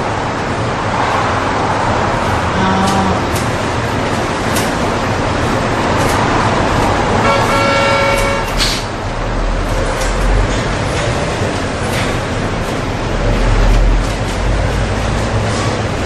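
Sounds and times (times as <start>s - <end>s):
road traffic rushing: 0.0s - 16.0s
car horn toot: 7.2s - 8.8s.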